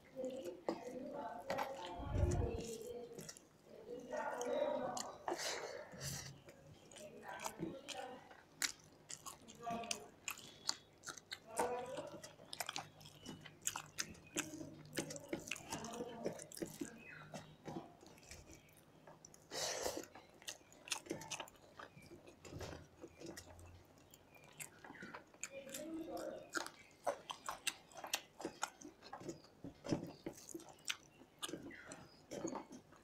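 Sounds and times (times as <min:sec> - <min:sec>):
people chewing: 0:00.0 - 0:33.0.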